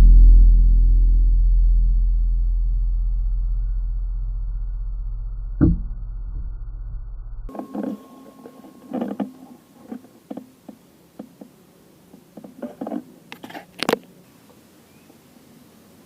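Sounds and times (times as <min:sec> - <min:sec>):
handling knocks and clicks: 0:07.5 - 0:14.1.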